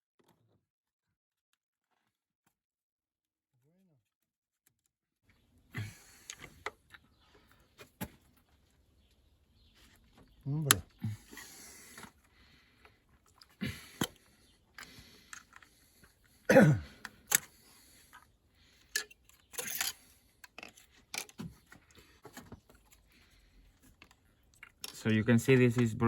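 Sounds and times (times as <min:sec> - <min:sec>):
tool and plastic clicks and rattles: 0:17.0 - 0:18.2, 0:18.8 - 0:23.1, 0:23.8 - 0:26.0.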